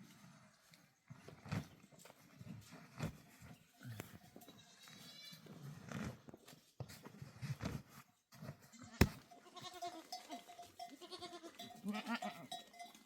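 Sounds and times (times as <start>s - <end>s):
goats bleating: 8.7s - 12.6s.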